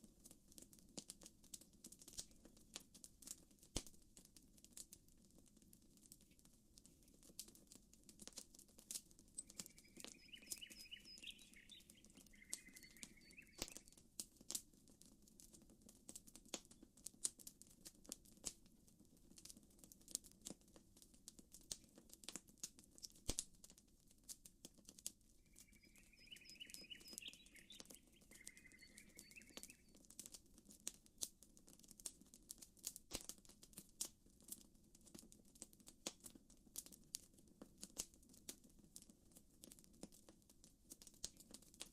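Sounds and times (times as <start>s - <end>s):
campfire crackling and popping: 0.0s - 41.9s
bird calling: 9.4s - 13.9s, 25.5s - 29.9s.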